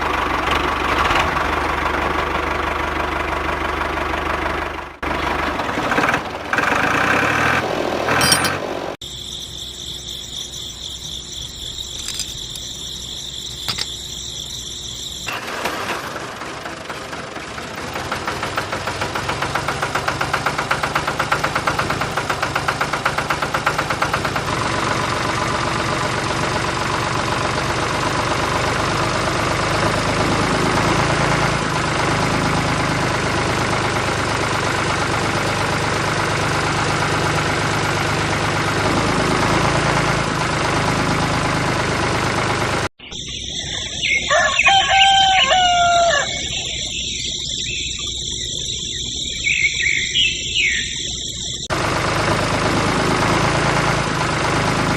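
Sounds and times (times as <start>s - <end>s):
small tractor motor pulsing: 0.0s - 54.9s
rooster crowing: 43.6s - 47.8s.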